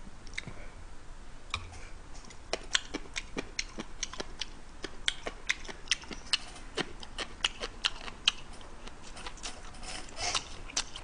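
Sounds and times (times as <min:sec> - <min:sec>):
wet chewing with mouth clicks: 0:02.2 - 0:11.0.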